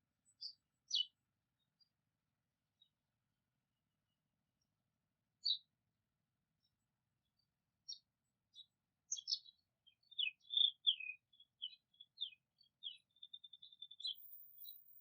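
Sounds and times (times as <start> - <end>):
songbird singing: 0.2 - 2.0, 5.4 - 5.7, 6.6 - 15.0.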